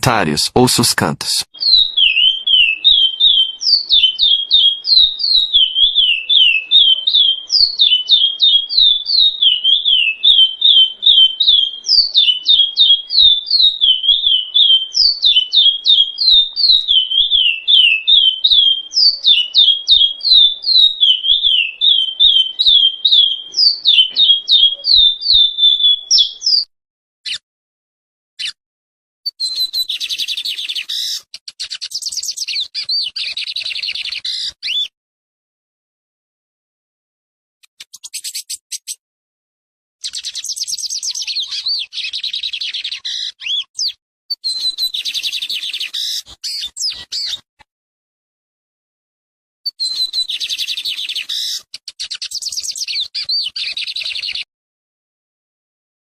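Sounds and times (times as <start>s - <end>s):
bird singing chirps and trills: 1.6s - 26.7s, 29.3s - 34.9s, 40.0s - 47.4s, 49.7s - 54.5s.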